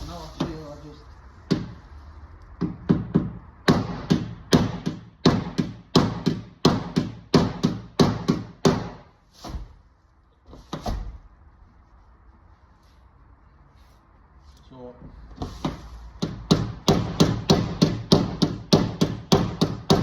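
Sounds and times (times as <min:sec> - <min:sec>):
hammer blows on sheet steel: 0:02.6 - 0:09.6, 0:15.6 - 0:20.0.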